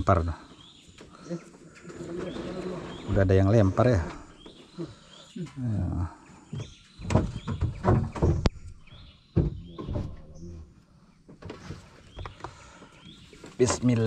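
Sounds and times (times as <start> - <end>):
small birds chirping: 0.0 - 14.0
knocks and rustles in a boat: 6.5 - 10.5, 11.2 - 14.0.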